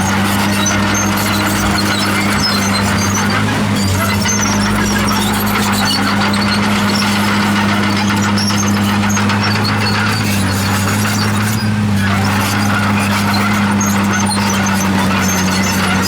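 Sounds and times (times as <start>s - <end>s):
bulldozer diesel engine running: 0.0s - 16.0s
steel tracks squealing: 0.0s - 16.0s.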